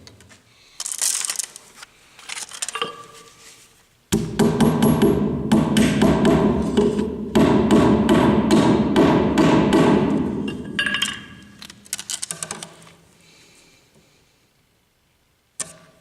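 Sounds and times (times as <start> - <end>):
hammer driving nails: 4.1 - 11.2.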